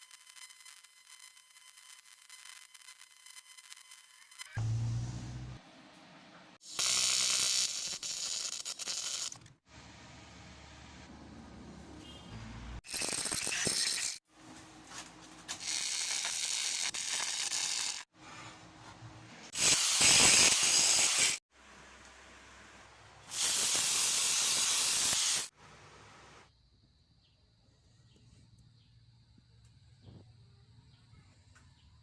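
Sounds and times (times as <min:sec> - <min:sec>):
welding arc hissing buzz: 0:00.0 - 0:05.6, 0:06.6 - 0:09.5, 0:15.5 - 0:18.1, 0:19.5 - 0:21.4, 0:23.3 - 0:25.5.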